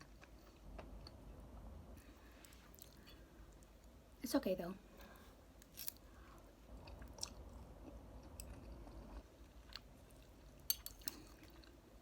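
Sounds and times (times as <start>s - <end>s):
person chewing food: 2.4s - 4.0s, 5.6s - 11.8s.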